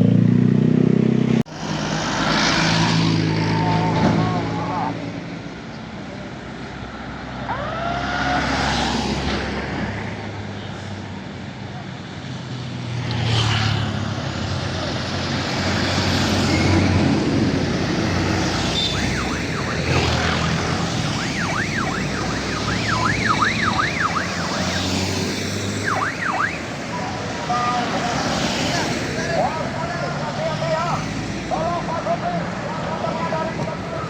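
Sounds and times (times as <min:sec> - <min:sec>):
truck engines droning: 0:00.0 - 0:34.0
siren yelping: 0:07.4 - 0:08.8, 0:18.6 - 0:25.1, 0:25.7 - 0:28.0.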